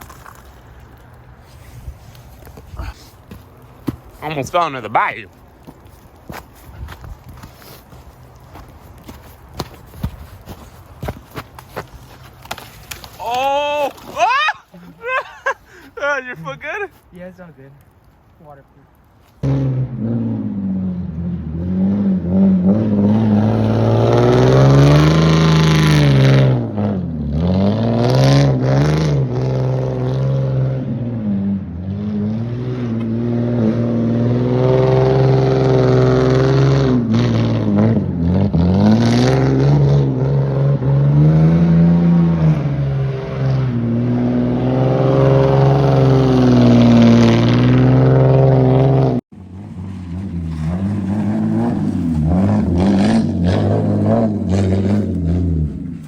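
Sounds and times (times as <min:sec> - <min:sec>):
car engine revving: 0:19.4 - 0:56.0.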